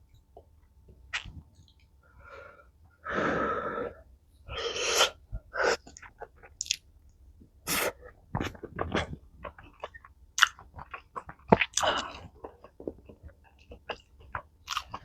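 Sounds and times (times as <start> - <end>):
soft chewing clicks: 5.8 - 7.2.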